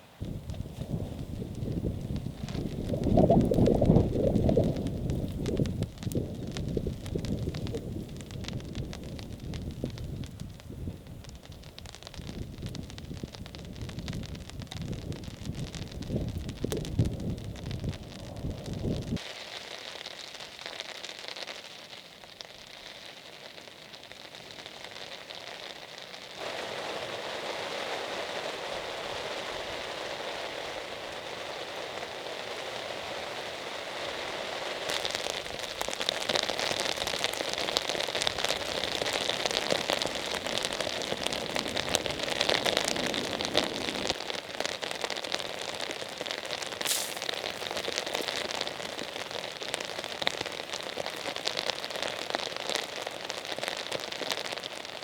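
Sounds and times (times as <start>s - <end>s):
heavy rain falling: 0.0s - 22.7s, 24.6s - 55.0s.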